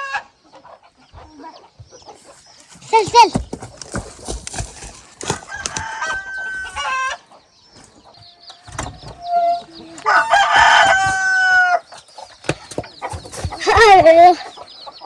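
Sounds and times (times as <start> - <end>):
chickens calling: 0.0 - 15.0
rooster crowing: 5.4 - 7.2, 9.2 - 11.9.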